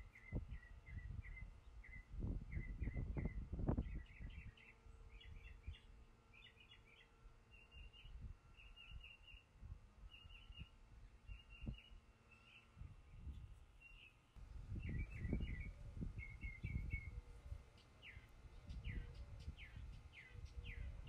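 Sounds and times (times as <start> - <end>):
small bird chirping: 14.8 - 21.0.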